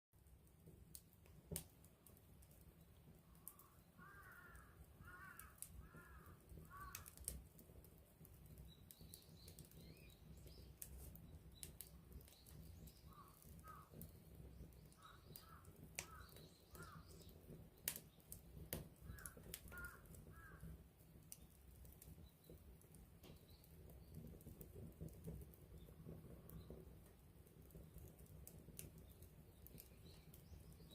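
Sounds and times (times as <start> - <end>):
campfire crackling and popping: 0.2 - 30.9
birds calling: 3.4 - 7.1, 12.2 - 17.3, 19.1 - 20.6.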